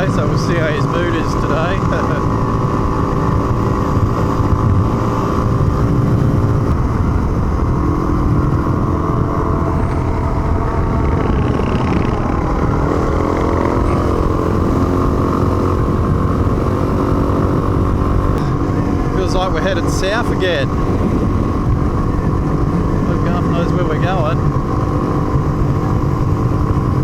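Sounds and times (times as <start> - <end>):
low rumble: 0.0 - 27.0
motorcycle engine running: 0.0 - 27.0.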